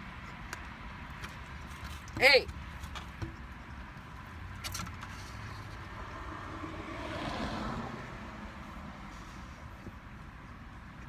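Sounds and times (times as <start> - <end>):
motor vehicle rumble: 0.0 - 11.0
vehicle passing by: 5.4 - 9.8.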